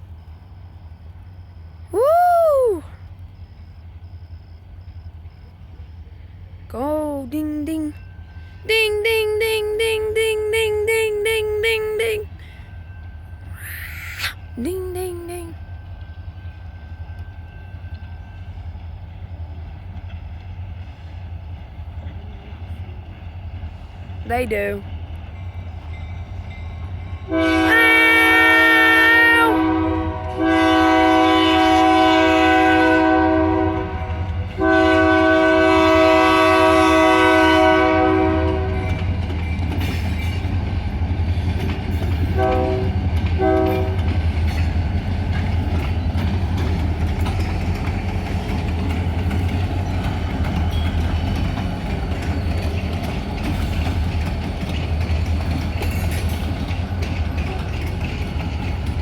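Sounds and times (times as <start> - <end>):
freight train rumbling past: 0.0 - 59.0
locomotive air horn: 27.3 - 39.0, 42.4 - 44.0.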